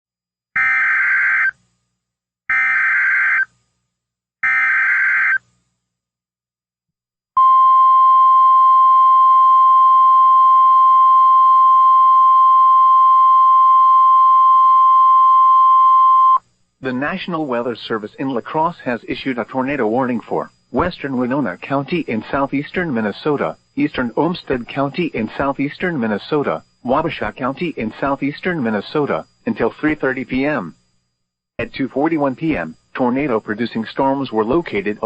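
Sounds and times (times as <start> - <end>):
screeching data tones: 0.6 - 1.6, 2.5 - 3.5, 4.4 - 5.5
steady warning alarm tone: 0.6 - 1.6, 2.5 - 3.6, 4.4 - 5.5.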